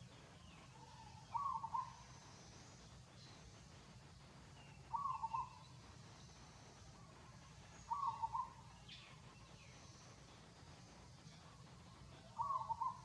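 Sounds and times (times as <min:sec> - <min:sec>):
bird call: 0:00.4 - 0:02.4, 0:04.7 - 0:05.7, 0:07.8 - 0:09.7, 0:12.2 - 0:13.0.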